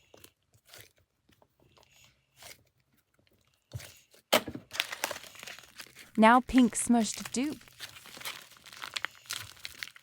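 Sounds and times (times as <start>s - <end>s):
plastic packaging crinkling: 4.4s - 10.0s.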